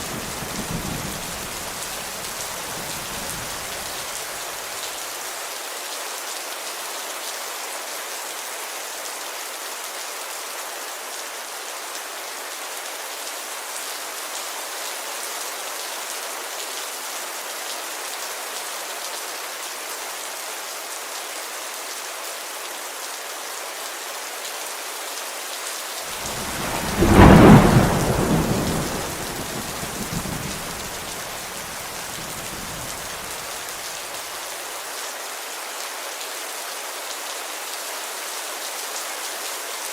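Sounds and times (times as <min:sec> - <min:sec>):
rain on a window: 0:00.0 - 0:20.2, 0:21.0 - 0:39.9
thunder rumbling: 0:26.1 - 0:33.5.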